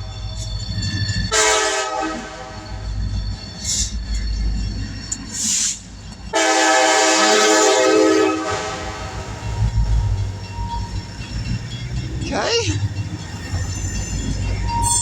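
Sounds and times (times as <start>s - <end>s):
train rumbling: 0.0s - 15.0s
locomotive horn blast: 1.3s - 2.6s, 6.3s - 9.4s.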